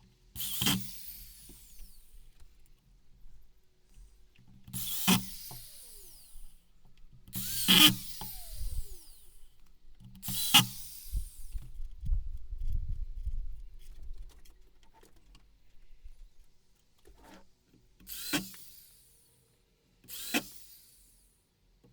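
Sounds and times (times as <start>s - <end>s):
power drill whining: 0.4s - 12.4s, 18.0s - 19.3s, 20.1s - 21.2s.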